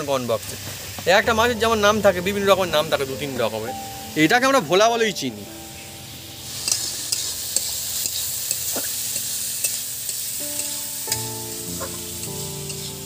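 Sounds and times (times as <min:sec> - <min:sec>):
vegetables sizzling in oil: 0:00.0 - 0:13.0
spatula scraping a wok: 0:06.4 - 0:13.0.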